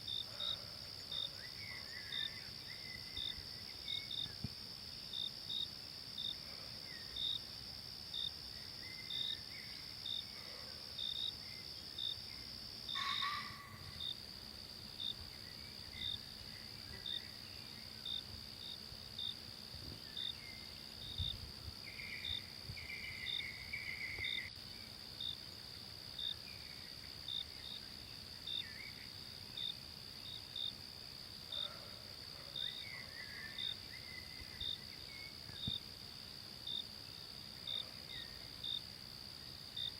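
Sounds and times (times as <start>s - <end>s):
crickets chirping: 0.0s - 39.9s
insects droning: 0.0s - 39.9s
faint scattered calls: 12.9s - 14.0s.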